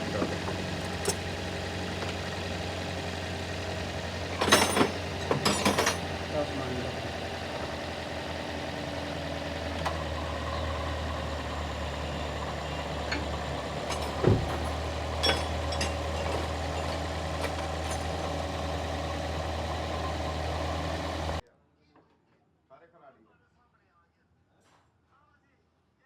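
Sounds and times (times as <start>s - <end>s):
car engine idling: 0.0s - 21.4s.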